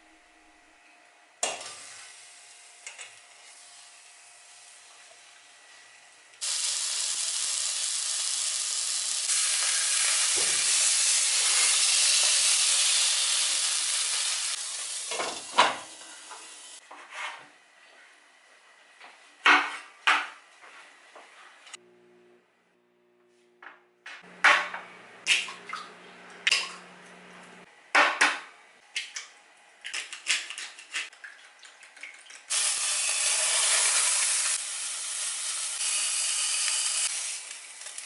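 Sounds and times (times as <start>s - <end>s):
fish searing in hot oil: 6.4s - 16.8s, 32.5s - 38.0s.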